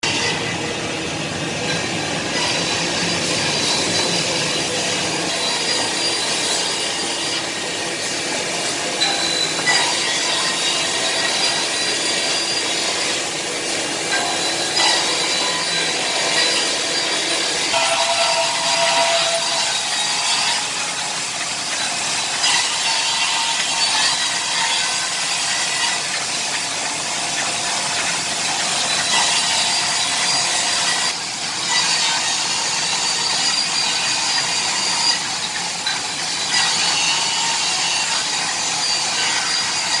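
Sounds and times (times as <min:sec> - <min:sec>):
cutting machine whining: 0:01.8 - 0:31.3.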